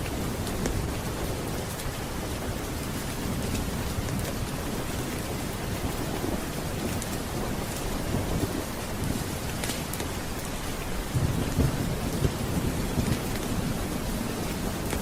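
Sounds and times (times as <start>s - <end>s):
heavy rain: 0.0s - 15.0s
low thunder rumble: 0.2s - 15.0s
faint sharp crackles: 9.1s - 10.6s.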